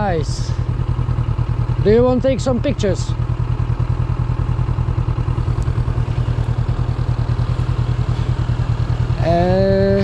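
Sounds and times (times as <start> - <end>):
motorcycle engine running at low revs: 0.0 - 10.0.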